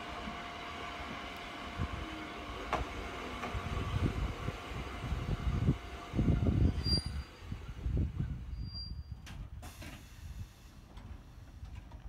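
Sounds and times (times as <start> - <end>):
electric train running hum: 0.0 - 8.7
wind buffeting microphone: 2.9 - 9.6.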